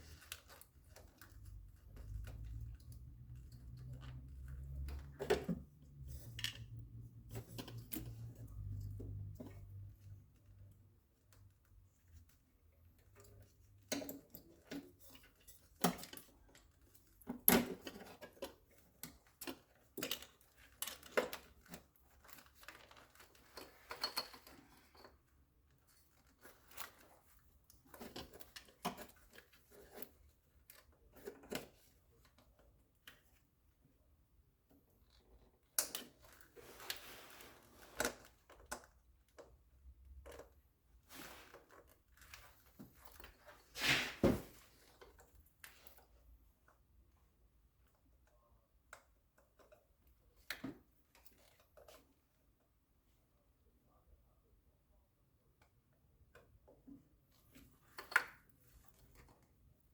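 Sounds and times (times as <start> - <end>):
rustling: 36.2 - 38.5, 41.0 - 45.8.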